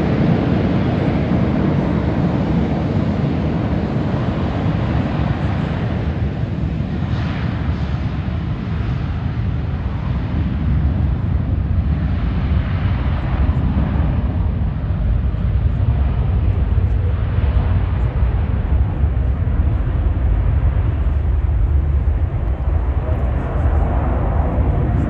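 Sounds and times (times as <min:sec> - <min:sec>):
jet engine rumble in flight: 0:00.0 - 0:25.0.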